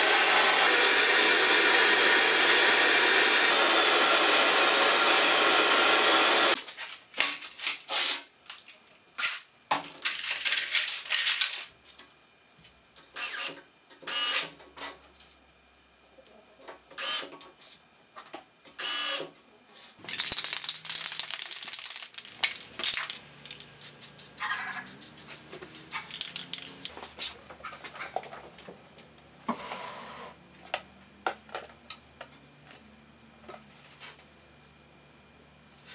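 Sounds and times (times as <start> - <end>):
cordless drill driving screws: 0.0 - 6.6
screws clicking and rattling: 20.0 - 27.0.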